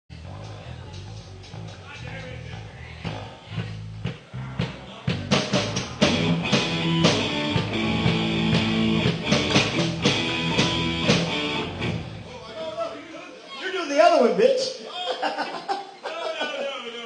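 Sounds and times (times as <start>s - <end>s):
low bass notes: 0.1s - 12.4s
live rock band playing: 4.5s - 12.3s.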